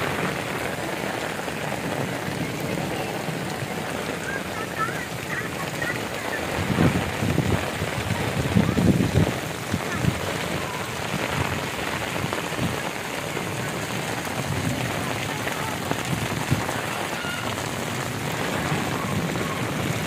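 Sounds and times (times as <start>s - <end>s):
heavy rain on flooded street: 0.0s - 20.0s.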